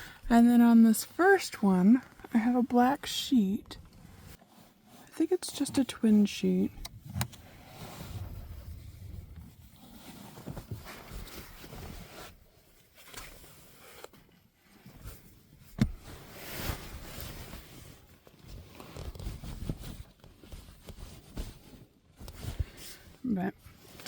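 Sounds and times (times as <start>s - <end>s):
cloth sheet rustling: 15.9s - 23.1s.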